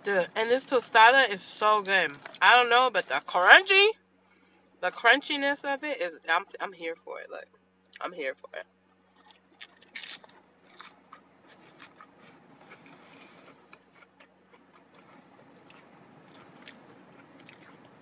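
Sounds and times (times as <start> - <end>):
tostada shell crunching: 8.9 - 18.0
soft chewing: 9.1 - 18.0.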